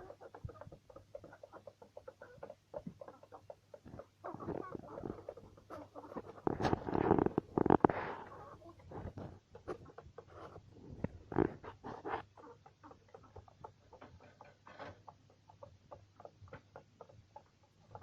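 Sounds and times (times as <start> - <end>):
beaks tapping on feed: 0.0 - 8.2.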